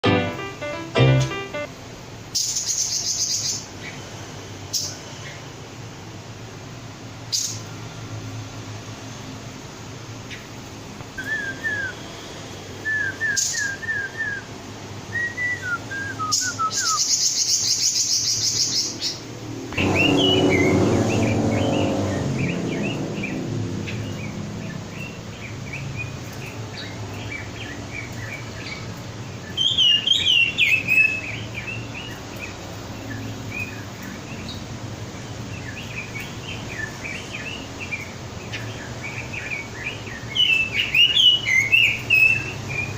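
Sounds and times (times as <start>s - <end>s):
bird singing chirps and whistles: 11.2s - 12.0s, 12.8s - 14.5s, 15.1s - 19.0s, 29.4s - 32.2s, 38.8s - 42.9s.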